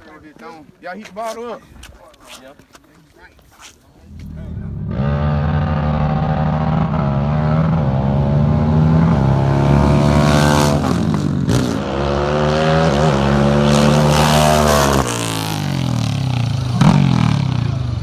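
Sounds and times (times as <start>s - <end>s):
atv engines revving: 4.0s - 18.0s.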